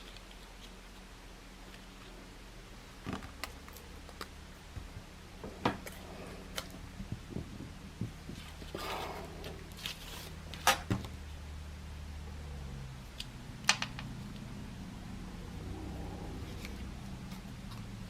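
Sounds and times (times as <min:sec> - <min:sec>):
low steady hum: 0:00.0 - 0:18.0
paper rustle: 0:08.4 - 0:10.6.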